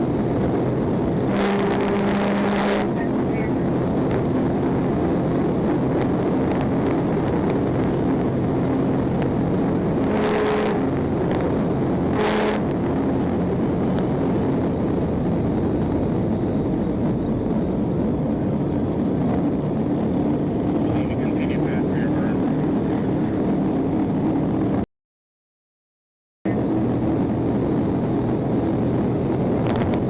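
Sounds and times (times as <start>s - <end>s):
car engine and road noise: 0.0s - 24.8s, 26.5s - 30.0s
short horn blasts: 1.3s - 3.0s, 10.1s - 10.8s, 12.1s - 12.7s.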